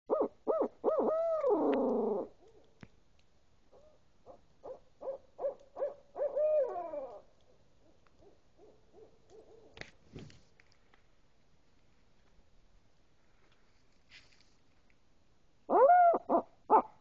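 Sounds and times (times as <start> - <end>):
owl hooting: 0.1 - 2.6, 3.7 - 9.8, 15.7 - 17.0.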